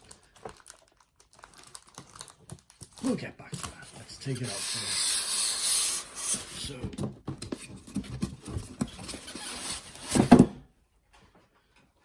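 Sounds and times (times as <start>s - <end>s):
light knocks and scrapes: 3.8s - 10.5s
cardboard box rustling scrape: 3.8s - 10.6s.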